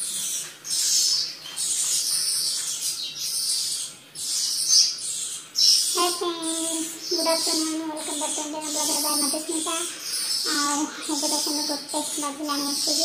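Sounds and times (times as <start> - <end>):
birds giving harsh hissy calls: 0.0 - 13.0.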